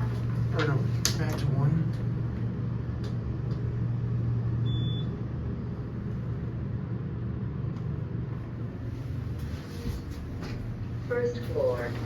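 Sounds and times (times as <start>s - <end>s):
elevator hum and rumble: 0.0s - 12.0s
high beep: 4.6s - 5.1s.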